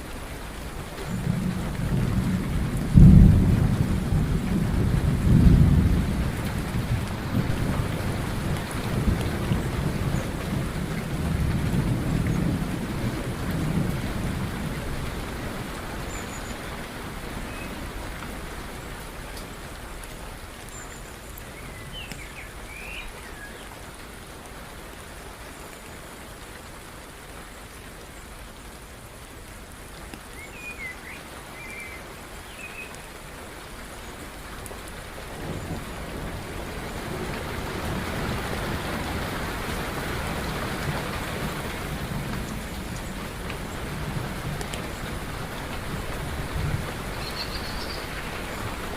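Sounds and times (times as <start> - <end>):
steady rain falling: 0.0 - 48.9
thunder rumbling: 1.0 - 16.1.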